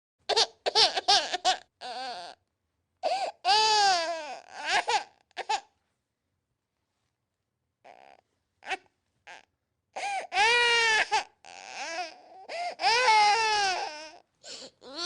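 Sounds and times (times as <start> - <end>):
baby crying: 0.3 - 2.4, 3.0 - 5.7, 7.8 - 15.0.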